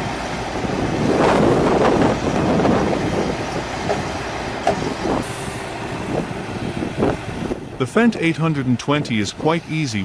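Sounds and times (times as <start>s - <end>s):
heavy machinery running: 0.0s - 8.6s
metallic clanks: 3.8s - 5.0s.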